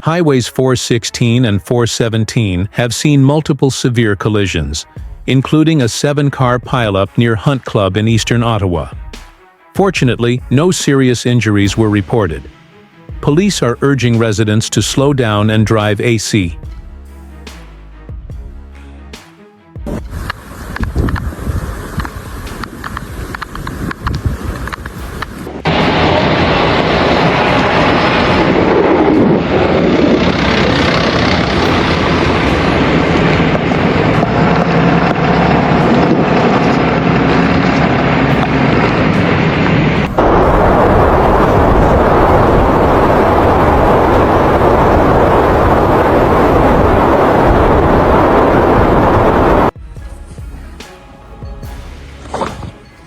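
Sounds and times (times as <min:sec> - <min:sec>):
low engine hum: 0:19.9 - 0:49.7
loud rushing noise: 0:19.9 - 0:49.8.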